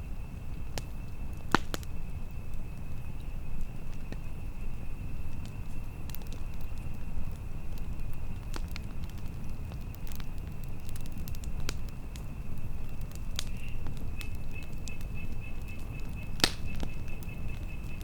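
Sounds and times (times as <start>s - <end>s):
campfire crackling and popping: 0.0s - 18.0s
low rumble of flames and wind: 0.0s - 18.0s.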